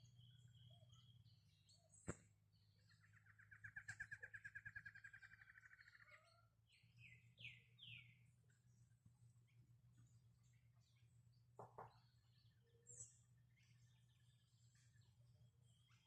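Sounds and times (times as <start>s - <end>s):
faint low hum: 5.7s - 16.0s.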